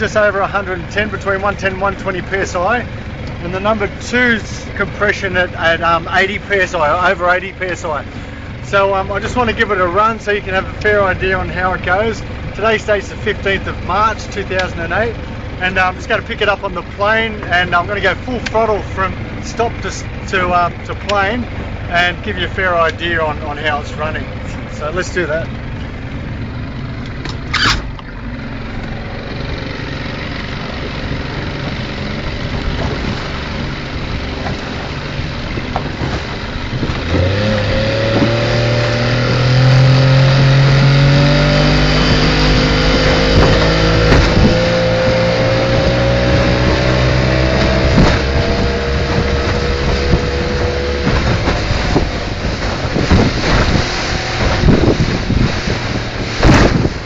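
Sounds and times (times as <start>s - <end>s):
outboard motor at full throttle: 0.0s - 57.0s
rush of wind and water: 30.6s - 57.0s.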